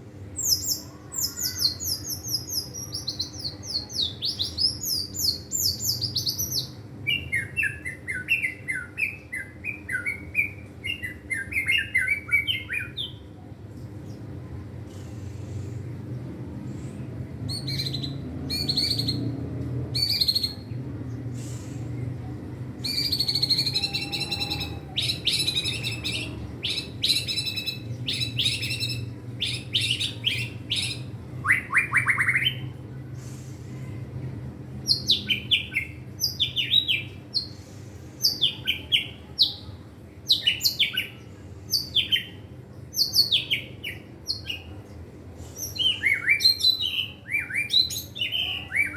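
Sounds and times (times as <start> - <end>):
songbird singing trills and whistles: 0.4 - 13.3, 17.5 - 19.4, 20.0 - 21.2, 22.8 - 32.8, 34.8 - 37.6, 40.3 - 44.8, 45.6 - 48.9.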